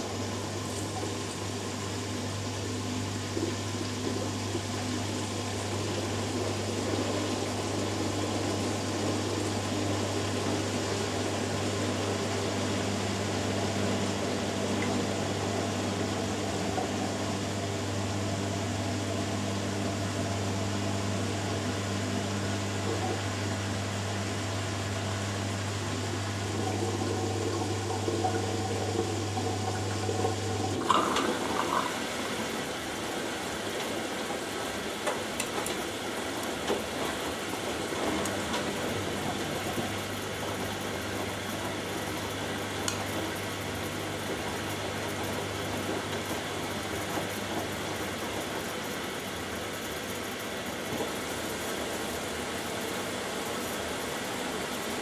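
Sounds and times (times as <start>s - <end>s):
washing machine electric hum: 0.0s - 55.0s
water rushing in: 21.8s - 35.0s.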